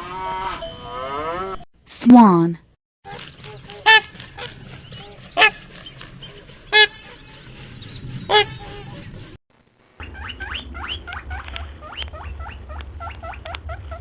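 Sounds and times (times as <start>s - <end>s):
swans honking: 3.1s - 9.3s
soft calls and chirps of flock: 3.1s - 9.4s.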